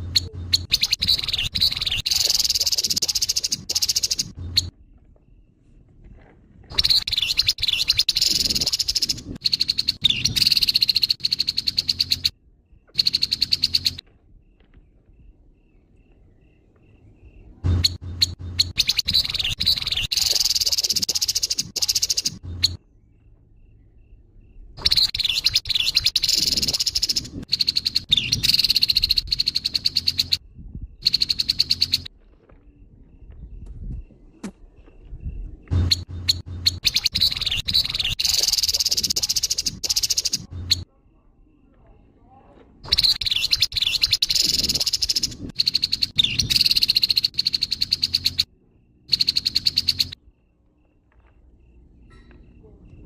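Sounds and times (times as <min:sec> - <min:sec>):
bird rattling chatter calls: 0:00.1 - 0:04.7, 0:06.7 - 0:12.3, 0:17.8 - 0:22.8, 0:24.8 - 0:30.4, 0:35.9 - 0:40.8, 0:42.9 - 0:48.5.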